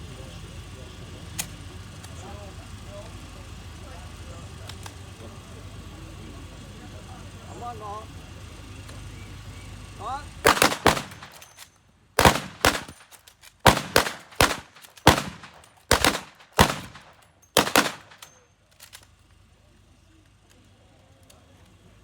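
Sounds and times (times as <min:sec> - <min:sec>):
rifle shots echoing: 0:10.4 - 0:11.6, 0:12.2 - 0:18.3.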